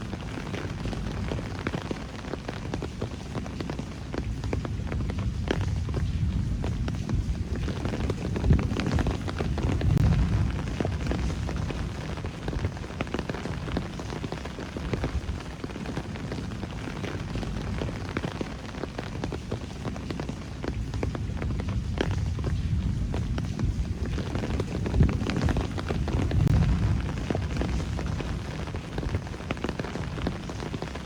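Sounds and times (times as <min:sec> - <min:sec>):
raindrops pattering close by: 0:00.0 - 0:31.0
steady rain falling: 0:00.0 - 0:31.0
low rumble: 0:04.7 - 0:14.0, 0:20.9 - 0:31.0.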